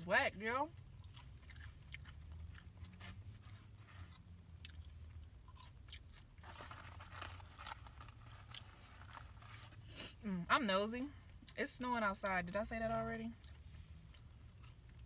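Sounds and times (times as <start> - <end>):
close-miked chewing: 0.6 - 6.6, 12.9 - 15.0.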